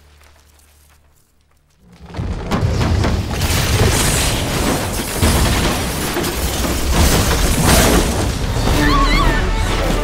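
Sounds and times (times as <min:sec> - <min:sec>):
debris crashing: 0:00.0 - 0:10.0
film soundtrack music: 0:08.4 - 0:10.0.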